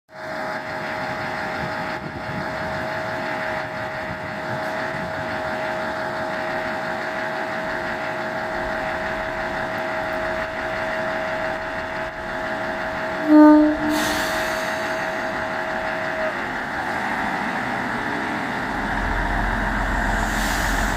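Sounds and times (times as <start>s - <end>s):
railcar engine idling: 0.1s - 20.9s
high-pitched hum: 8.6s - 16.8s.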